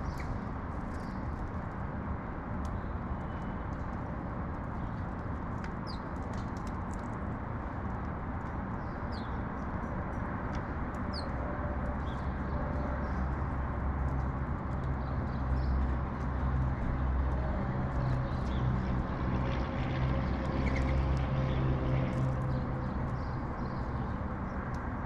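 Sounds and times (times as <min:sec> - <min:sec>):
small birds chirping: 0:00.0 - 0:01.2, 0:05.8 - 0:06.1.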